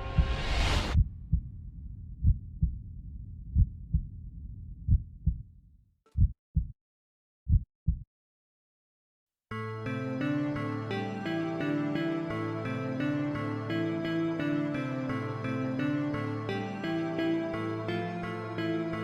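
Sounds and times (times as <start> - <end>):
heartbeat thumps: 0.0 - 5.5, 6.1 - 6.8, 7.5 - 8.1
low rumble: 0.0 - 5.8
music: 9.5 - 19.0.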